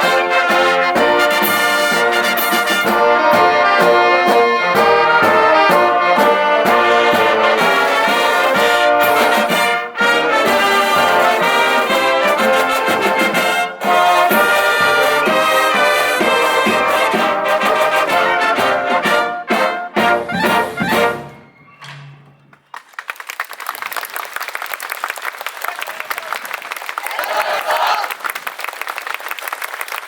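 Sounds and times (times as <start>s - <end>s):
brass band playing a march: 0.0s - 22.2s
steady drum beat: 4.7s - 21.4s.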